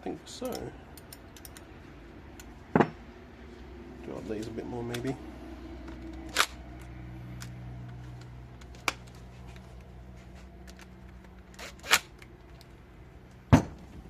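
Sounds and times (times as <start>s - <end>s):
tools clicking and knocking: 0.4s - 3.0s, 5.8s - 12.7s.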